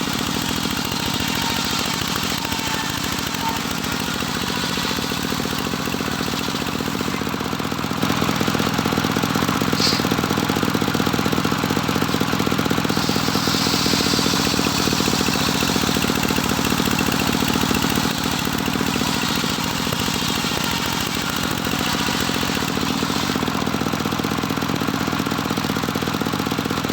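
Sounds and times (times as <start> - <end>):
sawmill engine running: 0.0 - 26.9.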